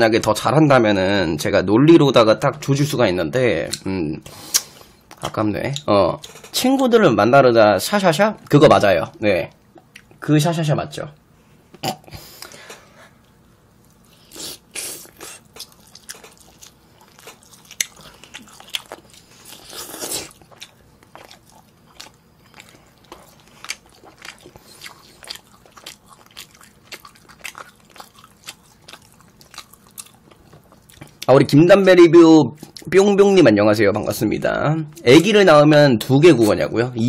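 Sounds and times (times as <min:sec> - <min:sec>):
people chewing: 0:11.7 - 0:31.3.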